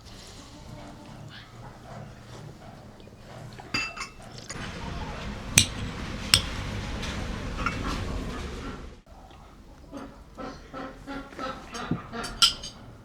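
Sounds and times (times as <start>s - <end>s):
dishes and glasses clinking: 3.7s - 8.5s, 11.5s - 13.0s.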